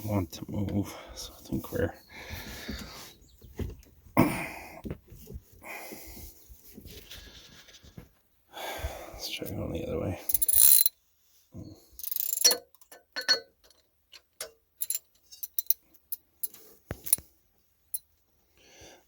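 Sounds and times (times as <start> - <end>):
metallic wrench clicks: 10.3 - 10.9, 12.0 - 12.6, 14.4 - 15.8.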